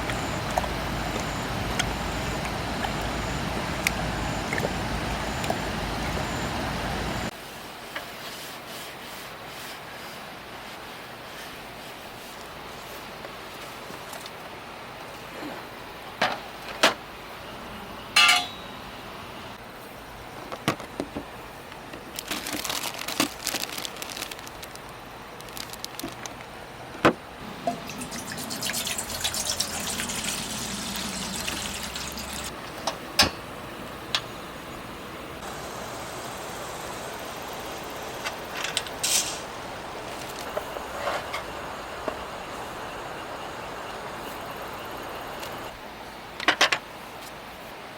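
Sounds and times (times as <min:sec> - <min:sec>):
dishes and utensils clinking: 0:18.2 - 0:18.7
liquid pouring and dripping: 0:27.4 - 0:32.8.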